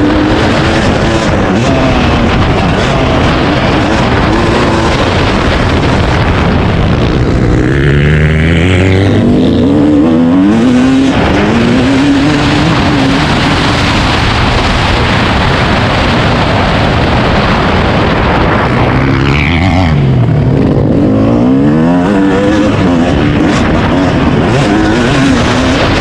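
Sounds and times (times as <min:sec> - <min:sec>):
dirt bike engine revving: 0:00.0 - 0:26.0
wind noise: 0:00.0 - 0:26.0.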